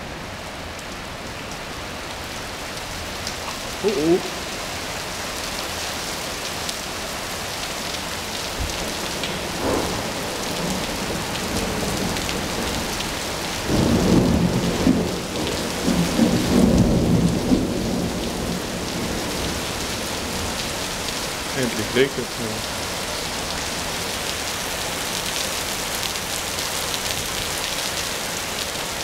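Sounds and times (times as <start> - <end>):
steady rain falling: 0.0 - 29.0
thunder rumbling: 8.6 - 19.6.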